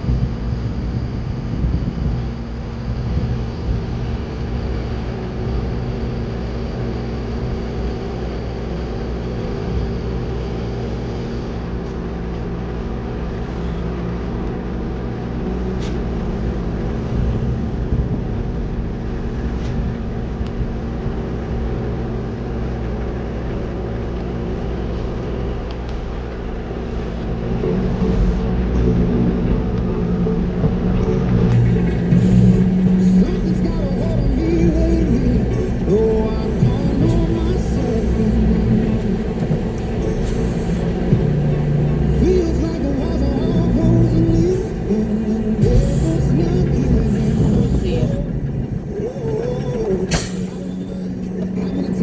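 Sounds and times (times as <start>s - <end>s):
diesel truck engine running: 31.5s - 52.0s.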